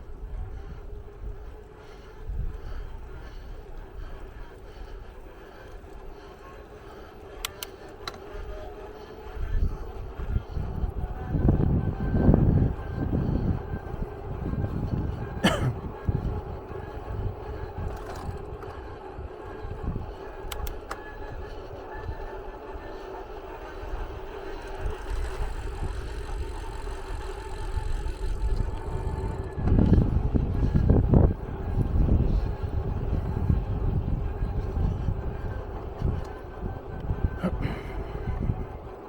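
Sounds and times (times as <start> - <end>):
buffeting rumble: 0.0 - 39.0
vehicle rumble and drone: 0.0 - 39.0
faint clicks: 4.6 - 8.7, 20.4 - 21.2.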